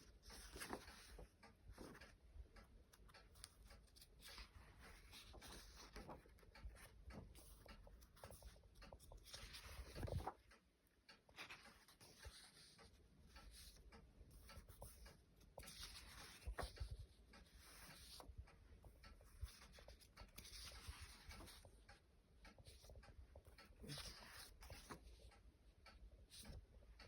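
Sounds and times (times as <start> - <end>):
paper pages rustling: 0.0 - 2.2, 3.3 - 10.4, 14.5 - 18.3, 19.2 - 21.7, 23.8 - 25.1.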